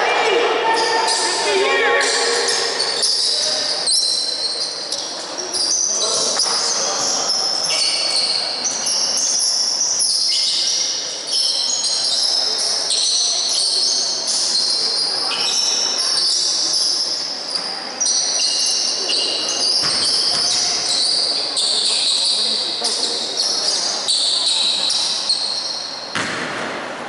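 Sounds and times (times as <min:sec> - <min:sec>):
voices of players and spectators: 0:00.0 - 0:27.0
sneakers squeaking on court: 0:02.0 - 0:26.3
basketball bouncing: 0:26.1 - 0:26.7.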